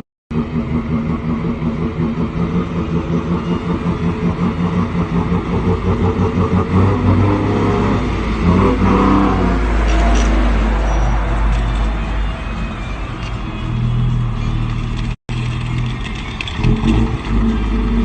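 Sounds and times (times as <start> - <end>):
truck engine running unevenly: 0.3 - 10.6.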